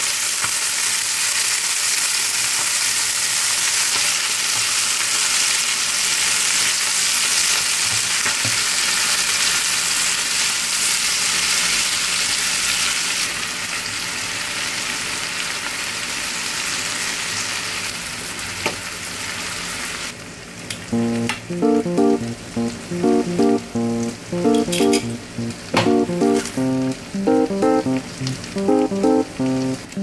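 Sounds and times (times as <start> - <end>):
fish sizzling in a frying pan: 0.0 - 20.4.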